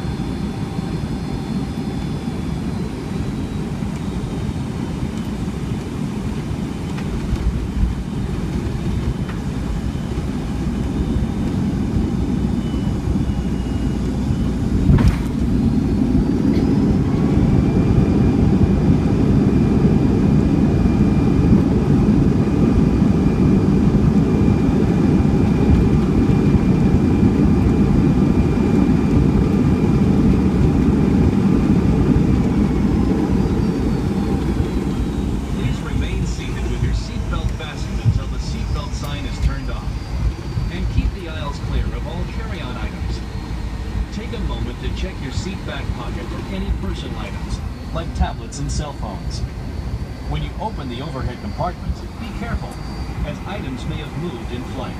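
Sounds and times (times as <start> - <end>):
jet engines whining: 0.0 - 54.9
rumble of air and wheels: 0.0 - 54.9
airliner touchdown thump: 14.8 - 15.6.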